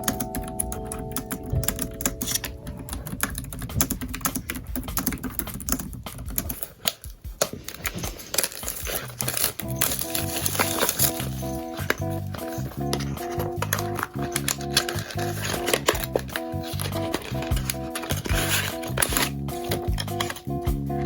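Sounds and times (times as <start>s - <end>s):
typing on a keyboard: 0.0s - 7.2s
soft background music: 0.0s - 21.0s.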